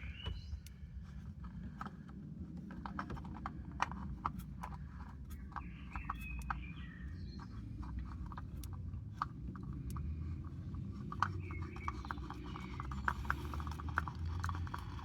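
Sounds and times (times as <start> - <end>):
low background rumble: 0.0 - 15.0
oil filter clicks and taps: 7.4 - 15.0.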